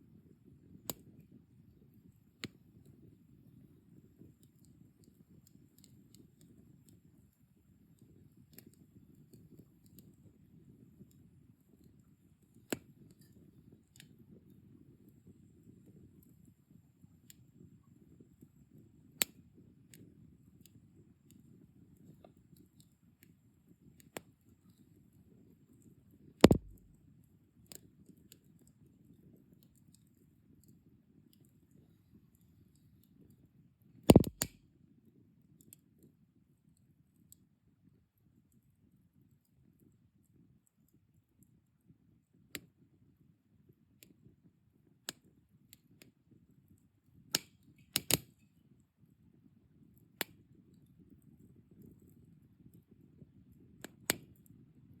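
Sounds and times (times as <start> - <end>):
fire crackles and pops: 26.4 - 27.0, 34.1 - 34.6, 47.3 - 48.4
wood fire crackling: 26.4 - 27.0, 34.1 - 34.6
low rumble of burning: 26.4 - 27.2, 34.1 - 34.6.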